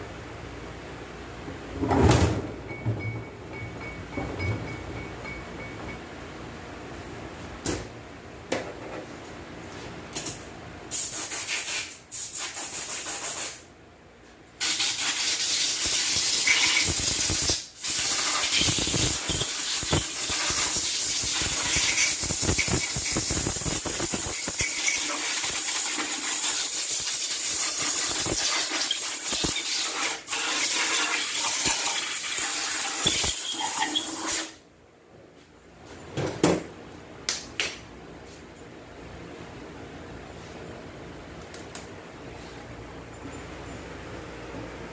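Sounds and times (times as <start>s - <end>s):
pressurised spray hissing: 14.6s - 30.5s.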